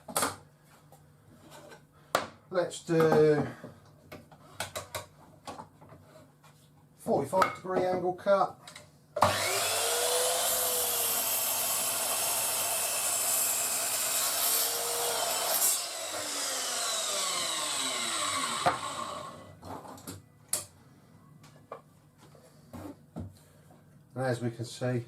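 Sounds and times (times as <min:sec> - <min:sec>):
mitre saw cutting wood: 0:09.2 - 0:19.5
saw winding down whine: 0:09.2 - 0:19.5.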